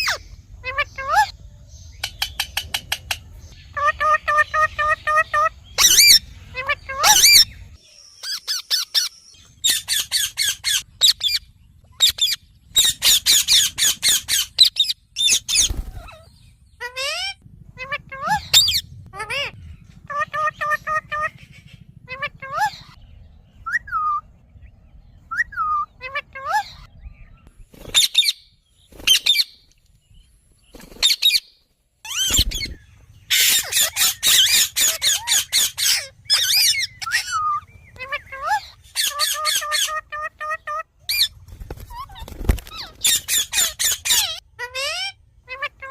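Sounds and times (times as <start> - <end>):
parakeet squawking: 0.0 - 1.4, 3.7 - 7.6, 8.2 - 23.0, 25.5 - 26.9, 32.1 - 45.9.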